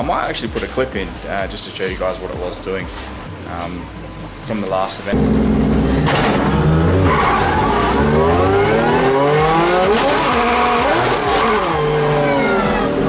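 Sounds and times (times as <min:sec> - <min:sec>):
race car engine accelerating: 0:05.1 - 0:13.0.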